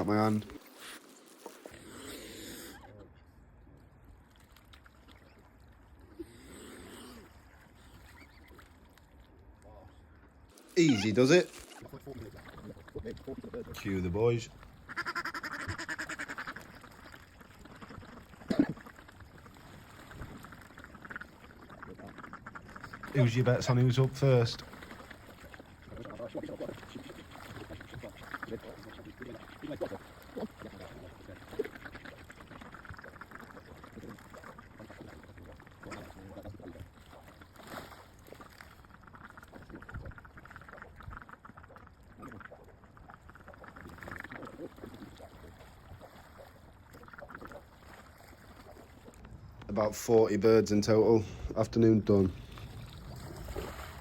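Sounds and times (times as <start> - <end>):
water splashing and lapping: 0.0 - 54.0
ducks quacking: 10.8 - 19.3, 20.4 - 24.5, 25.7 - 35.1, 35.8 - 36.7.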